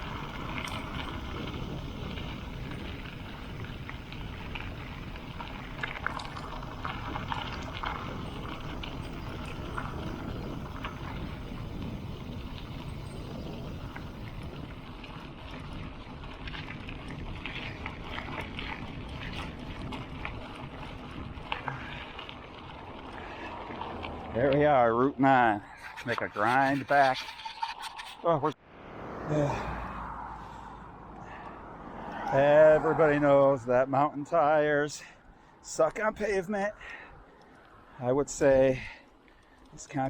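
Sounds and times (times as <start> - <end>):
small clicks and rattles: 0.0 - 11.5
wind rush on microphone: 0.0 - 24.5
bicycle tyres rumbling: 0.0 - 40.0.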